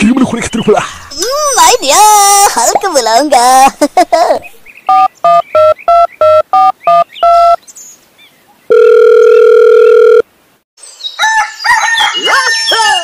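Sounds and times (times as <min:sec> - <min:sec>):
two-note electronic beeps: 0:04.9 - 0:07.6.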